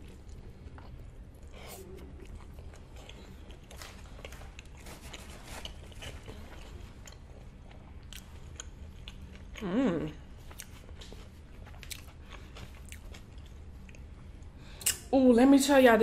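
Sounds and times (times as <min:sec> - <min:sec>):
close chewing with wet mouth clicks: 0:00.2 - 0:14.1
person humming mmm: 0:09.6 - 0:10.2.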